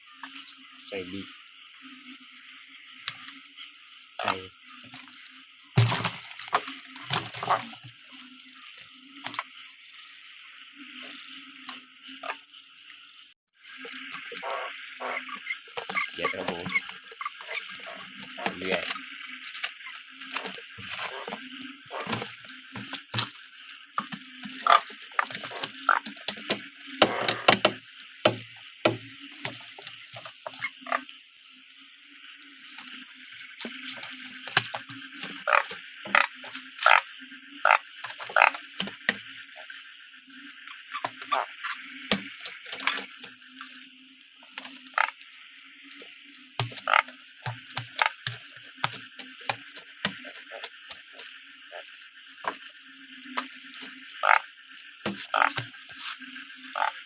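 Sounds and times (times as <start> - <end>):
frogs and insects chorus: 0.0 - 57.0
water splashing and sloshing: 0.0 - 57.0
sharp knocks and clatter: 5.8 - 7.7, 24.0 - 30.5, 42.1 - 43.3.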